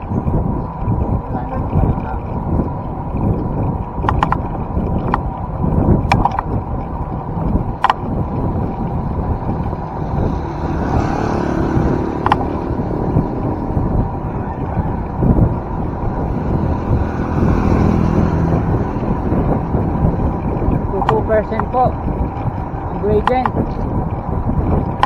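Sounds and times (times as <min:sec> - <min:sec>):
wind rumbling on microphone: 0:00.0 - 0:25.0
sharp clicks: 0:04.0 - 0:05.2, 0:06.0 - 0:06.5, 0:07.8 - 0:08.1, 0:12.2 - 0:12.6, 0:21.0 - 0:21.8, 0:23.1 - 0:23.6.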